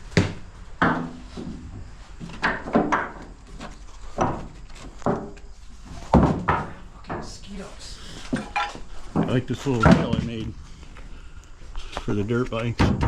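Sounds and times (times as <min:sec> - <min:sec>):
hard objects knocking and clunking: 0:00.1 - 0:07.4, 0:08.2 - 0:10.6.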